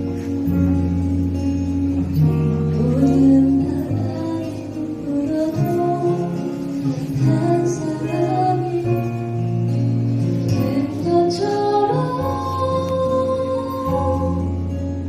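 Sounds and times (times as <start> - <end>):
acoustic guitar: 0.0 - 15.0
keyboard: 0.0 - 15.0
woman singing: 2.6 - 9.5, 10.5 - 14.8.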